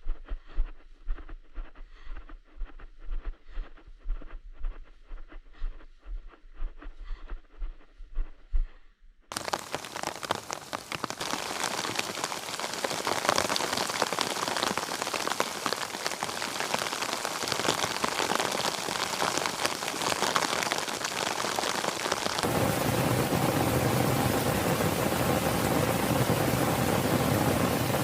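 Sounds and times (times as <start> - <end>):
rain falling: 9.3 - 28.0.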